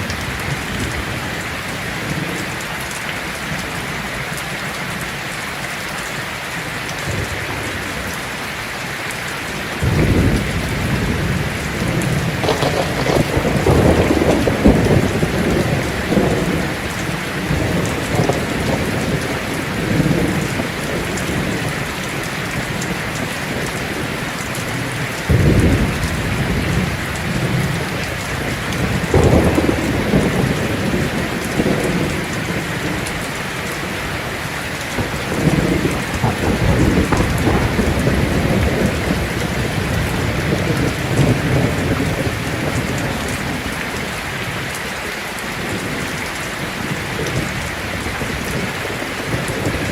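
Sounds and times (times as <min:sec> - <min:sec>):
heavy rain on a tin roof: 0:00.0 - 0:49.9
thunder rumbling: 0:09.7 - 0:44.6.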